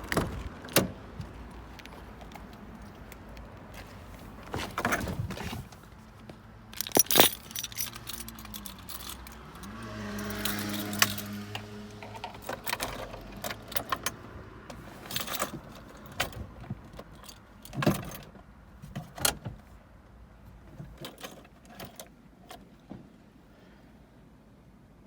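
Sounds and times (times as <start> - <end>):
car engine low hum: 0.0 - 25.0
keys jangling: 6.8 - 11.3.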